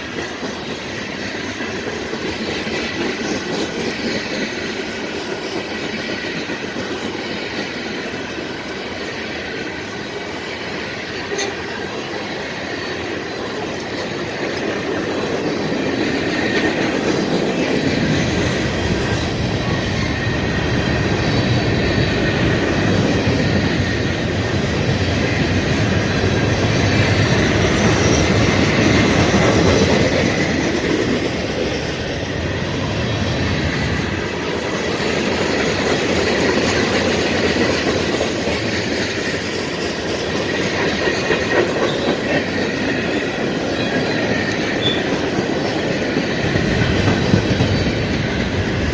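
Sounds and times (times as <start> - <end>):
freight train cars rolling past: 0.0 - 48.9.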